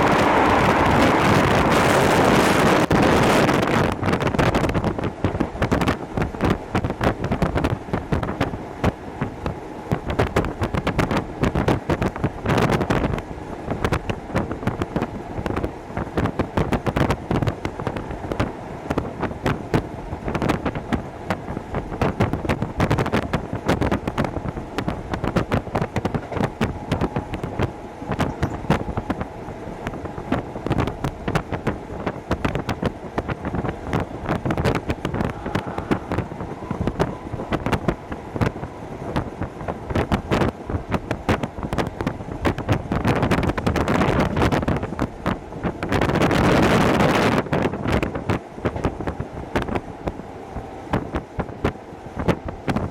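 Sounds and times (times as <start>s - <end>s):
rail clicks and clatter: 0.0s - 52.9s
train wheels rumbling on rails: 0.0s - 52.9s.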